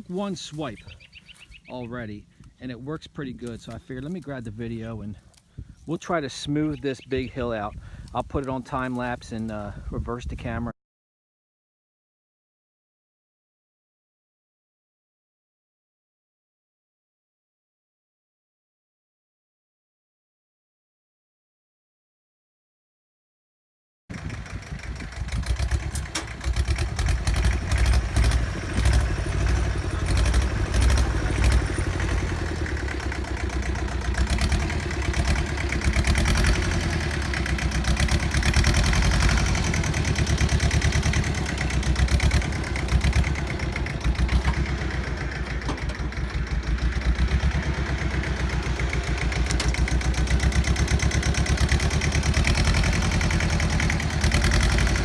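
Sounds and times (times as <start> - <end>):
garden tractor engine running: 0.0 - 9.8, 24.1 - 55.0.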